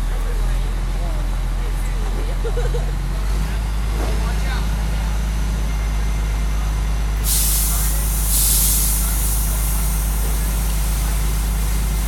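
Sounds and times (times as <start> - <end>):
fire hose spray hiss: 7.2 - 12.0.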